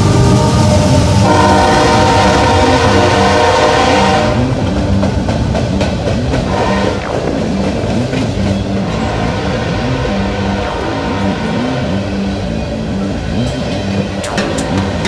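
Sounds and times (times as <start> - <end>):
diesel locomotive horn: 0.0 - 4.8, 6.4 - 7.1, 8.8 - 13.5
locomotive engine rumble: 0.0 - 15.0
train wheels rolling on rails: 0.0 - 15.0.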